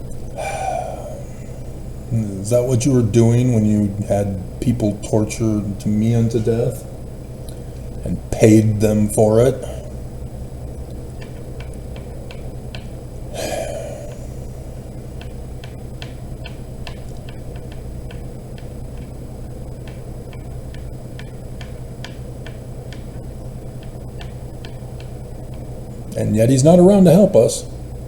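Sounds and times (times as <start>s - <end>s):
low steady hum: 0.0s - 28.0s
steady ticking: 10.2s - 26.2s.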